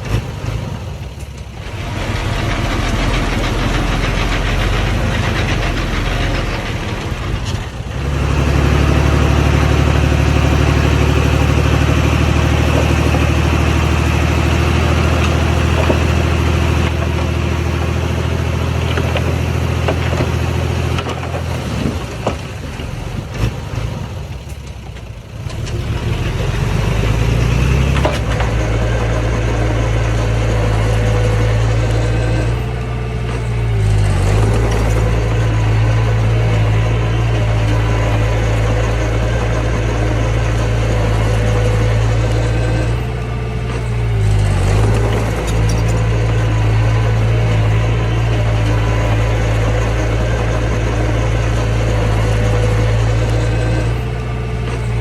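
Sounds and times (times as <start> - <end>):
diesel engine of heavy machinery: 0.0 - 55.0.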